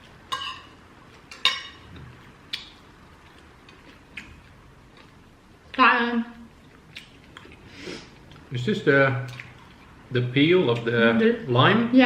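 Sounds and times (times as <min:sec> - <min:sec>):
cutlery clinking on plates: 0:00.3 - 0:01.9.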